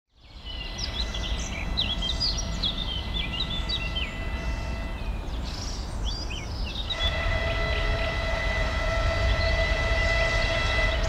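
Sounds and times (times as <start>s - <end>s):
songbirds chirping and whistling: 0.2s - 11.0s.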